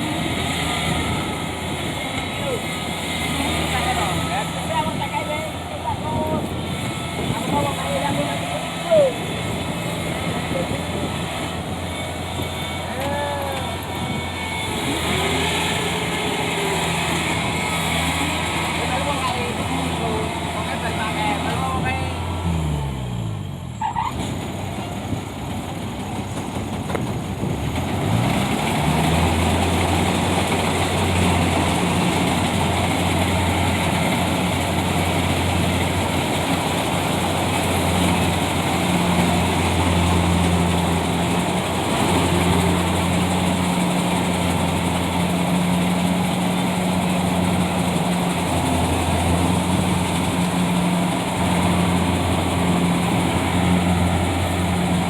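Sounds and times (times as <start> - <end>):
tractor engine humming: 0.0 - 55.0.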